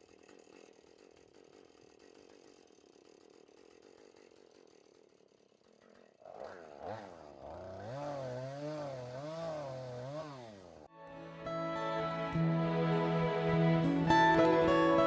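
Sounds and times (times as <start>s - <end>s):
chainsaw running: 0.0s - 10.9s
guitar music: 10.9s - 15.0s.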